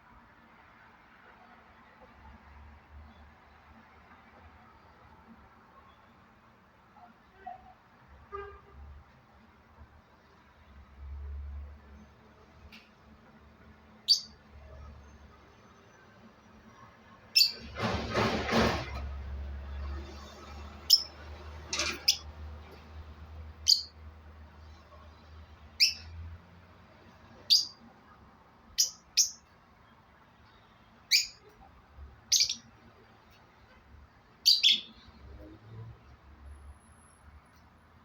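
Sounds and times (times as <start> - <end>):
parrot chirping: 14.0 - 14.4, 17.3 - 17.6, 20.8 - 21.2, 21.8 - 22.4, 23.6 - 24.0, 25.8 - 26.1, 27.4 - 27.8, 28.8 - 29.5, 31.1 - 31.5, 32.3 - 32.7, 34.4 - 35.1.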